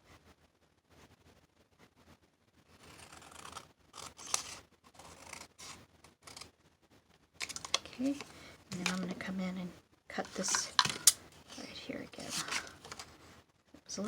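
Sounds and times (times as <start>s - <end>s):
scissors snipping paper: 2.9s - 6.5s, 10.2s - 13.0s.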